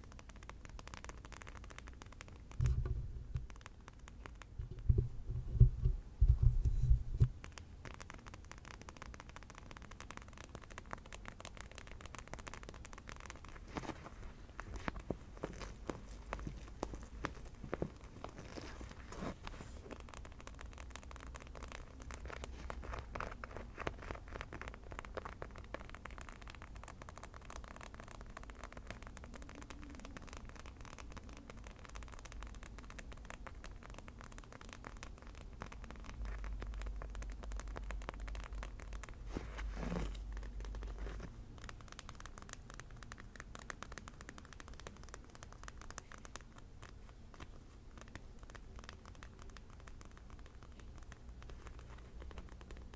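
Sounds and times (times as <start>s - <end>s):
rapid tapping and scratching: 0.0s - 52.9s.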